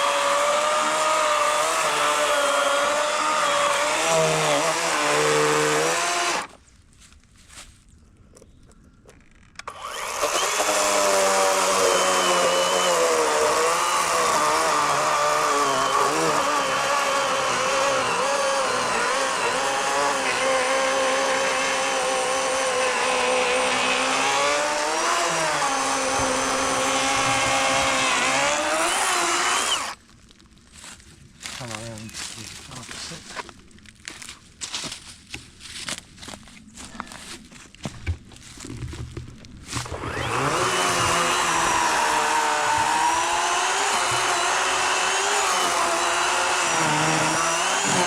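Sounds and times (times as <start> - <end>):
electric chainsaw cutting log: 0.0 - 6.6, 9.6 - 30.0, 39.7 - 48.0.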